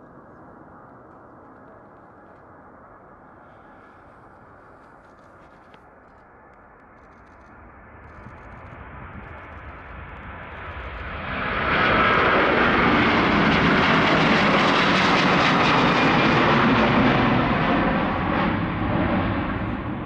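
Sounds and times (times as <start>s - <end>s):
jet engines at takeoff power: 5.9s - 20.0s.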